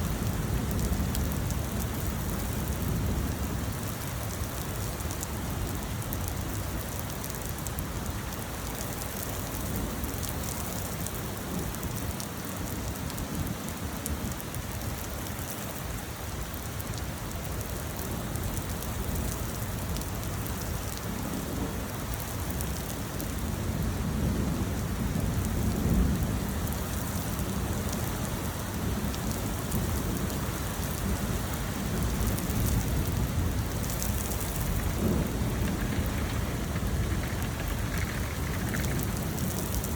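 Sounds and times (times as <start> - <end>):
rain falling: 0.0 - 39.9
thunder rumbling: 28.8 - 39.9.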